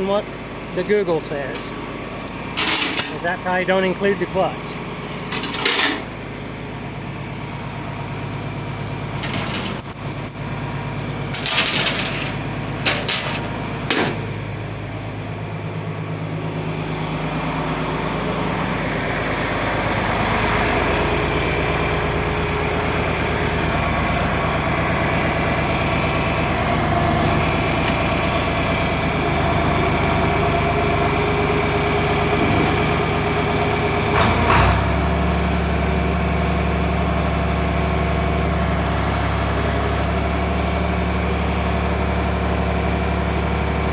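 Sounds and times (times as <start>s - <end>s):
engine idling: 0.0s - 43.9s
sharp engine knocks: 11.3s - 14.3s, 34.0s - 35.1s.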